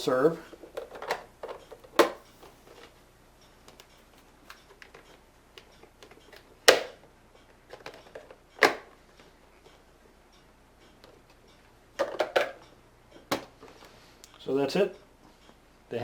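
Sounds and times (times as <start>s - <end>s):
plastic parts clicking and rattling: 0.4s - 2.9s, 3.6s - 9.0s, 12.0s - 13.9s
plastic parts knocking down: 0.6s - 2.6s, 6.3s - 7.0s, 7.7s - 9.0s, 12.0s - 12.6s, 13.3s - 13.6s.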